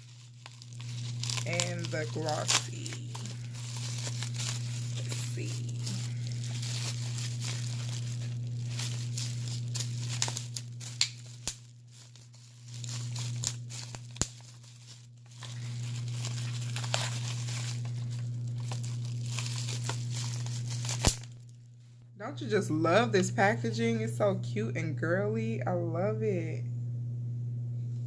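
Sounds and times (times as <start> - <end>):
plastic packaging crinkling and tearing: 0.0 - 21.6
steady low hum: 0.0 - 28.0.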